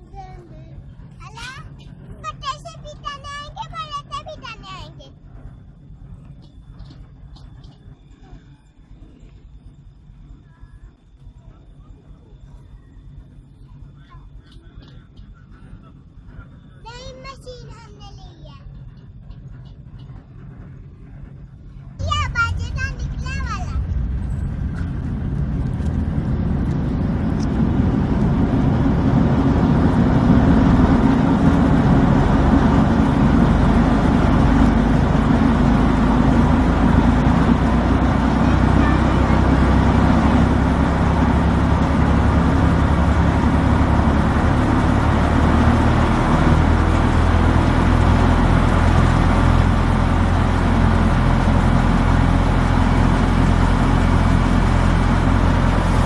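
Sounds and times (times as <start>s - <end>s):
low engine hum: 0.0s - 56.0s
threshing machine running: 13.1s - 56.0s.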